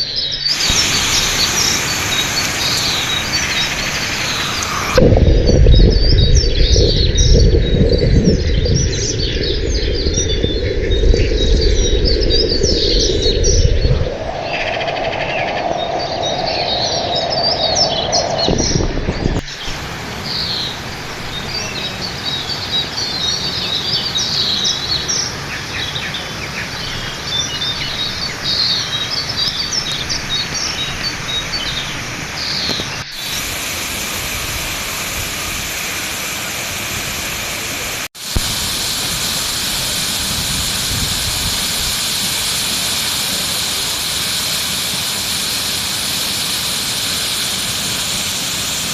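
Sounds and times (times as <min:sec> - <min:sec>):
birds chirping: 0:00.0 - 0:33.4
steady rushing hiss: 0:00.4 - 0:48.9.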